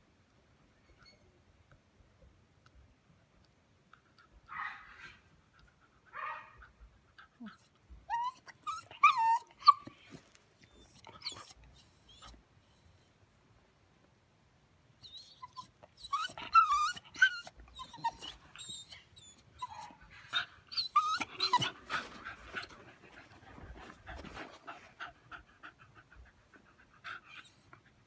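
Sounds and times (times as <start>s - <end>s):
puppy whining: 7.3s - 13.2s, 15.0s - 28.0s
puppy panting: 15.5s - 28.0s.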